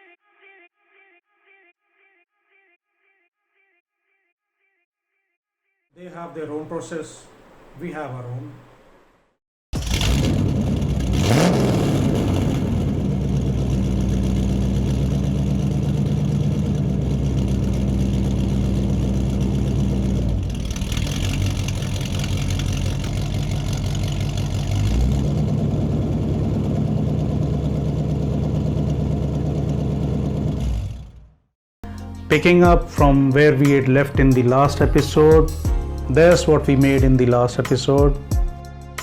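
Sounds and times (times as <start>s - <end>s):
truck engine revving: 9.8s - 31.4s.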